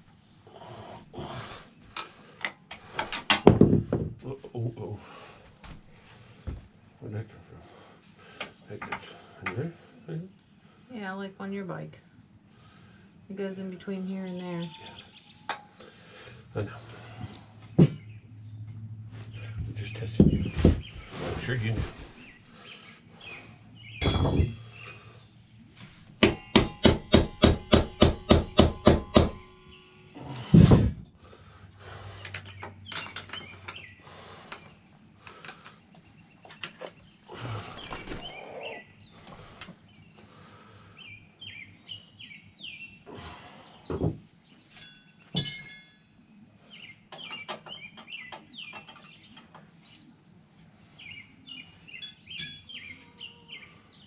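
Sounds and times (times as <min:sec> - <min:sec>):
birds chirping: 0:05.0 - 0:26.7, 0:29.4 - 0:54.0
clinks and knocks of tools: 0:24.0 - 0:24.7, 0:32.2 - 0:33.8, 0:44.7 - 0:46.3, 0:47.1 - 0:49.7, 0:52.0 - 0:52.9
ringing metal-on-metal blows: 0:26.3 - 0:29.7, 0:44.7 - 0:46.4, 0:52.0 - 0:52.9.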